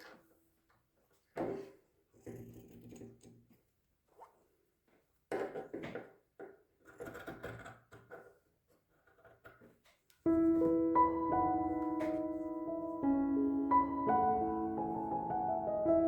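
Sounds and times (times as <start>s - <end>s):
handling rustles and knocks: 9.3s - 12.7s
soft piano music: 10.3s - 16.0s.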